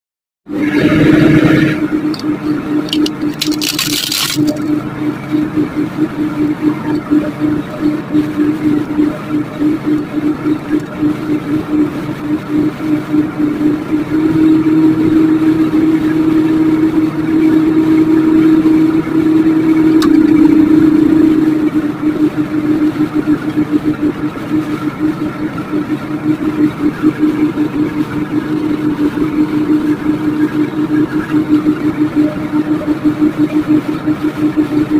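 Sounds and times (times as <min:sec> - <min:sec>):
microwave oven humming: 0:17.4 - 0:24.2.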